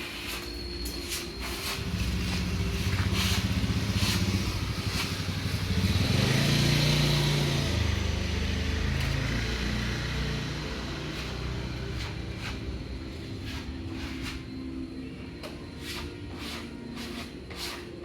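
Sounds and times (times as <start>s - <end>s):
engine running: 1.4s - 15.2s.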